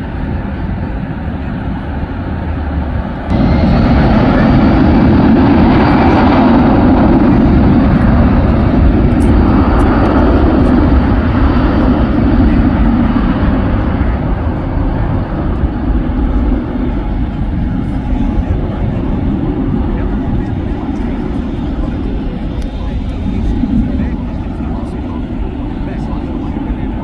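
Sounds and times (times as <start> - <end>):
jet engine roar: 0.0 - 27.0.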